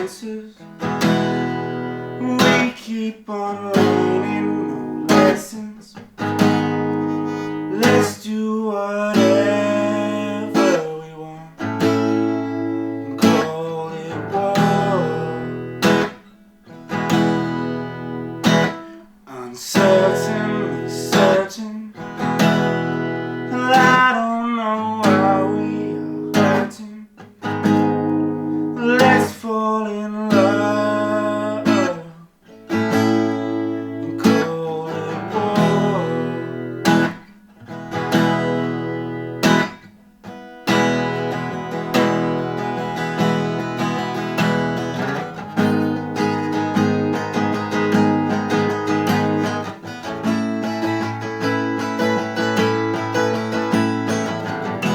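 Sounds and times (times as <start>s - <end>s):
acoustic guitar strumming chords: 0.0s - 54.9s.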